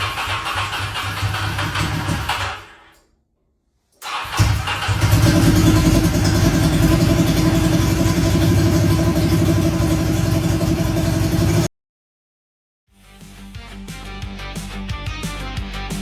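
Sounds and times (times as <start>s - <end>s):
motorcycle engine running: 0.0s - 2.6s, 4.3s - 11.7s.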